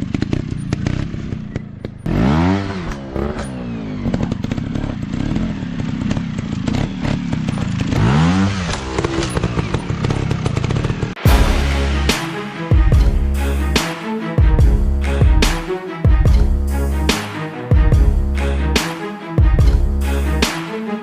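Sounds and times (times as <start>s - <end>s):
dirt bike engine revving: 0.0s - 12.2s
music: 11.2s - 21.0s.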